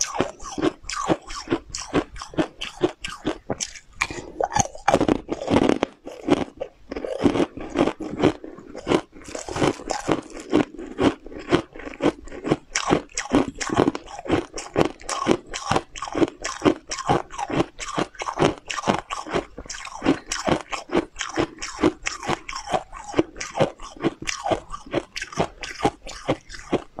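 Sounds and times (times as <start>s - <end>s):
crunchy chewing of cookies: 0.0s - 27.0s.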